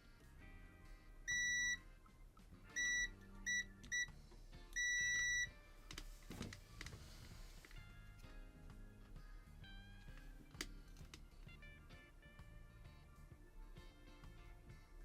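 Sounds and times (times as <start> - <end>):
faint background music: 0.0 - 15.0
continuity tester beeping: 1.3 - 2.1, 2.7 - 5.6.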